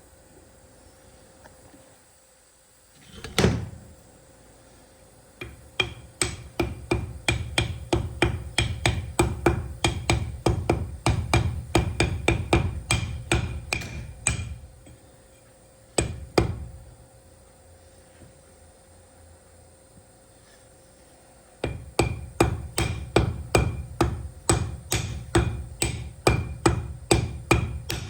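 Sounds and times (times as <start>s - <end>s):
hammer striking metal: 5.4s - 14.6s, 21.6s - 28.0s.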